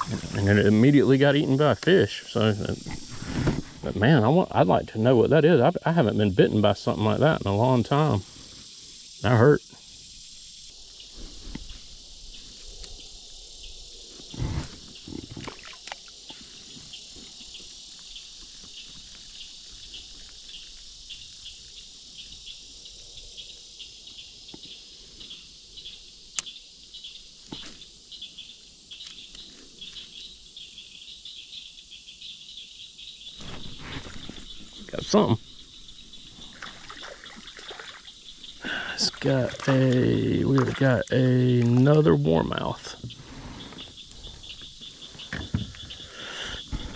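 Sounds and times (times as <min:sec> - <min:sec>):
pulsing insect chorus: 0:00.0 - 0:46.9
knocks and thumps: 0:45.2 - 0:46.1, 0:46.7 - 0:46.9.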